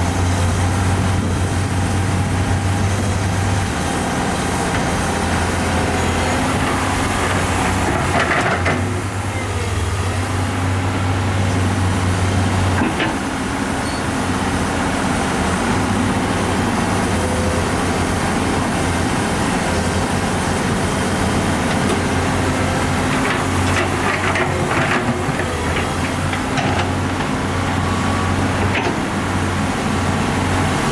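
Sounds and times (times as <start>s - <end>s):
diesel engine under load: 0.0s - 30.9s.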